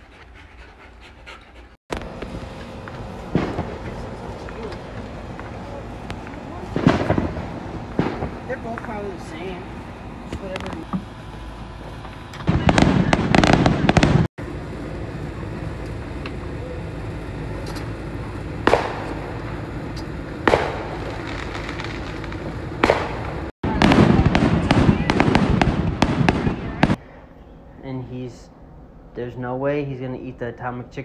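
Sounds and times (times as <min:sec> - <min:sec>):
fireworks bangs: 0:01.9 - 0:14.8, 0:15.9 - 0:27.0
fireworks crackling: 0:01.9 - 0:27.0.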